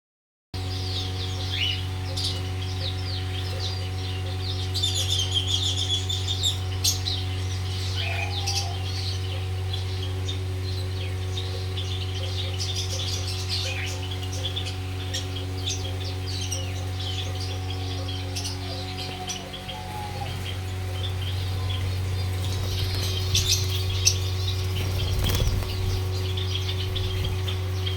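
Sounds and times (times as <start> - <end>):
small birds chirping: 0.6 - 27.9
steady low hum: 0.6 - 27.9.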